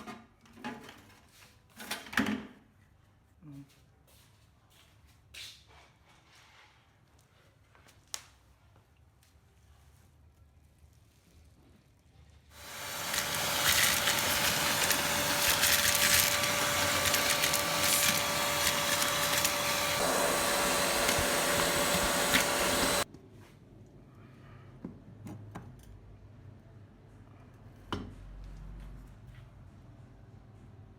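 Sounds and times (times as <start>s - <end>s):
vacuum cleaner running: 12.6s - 23.1s.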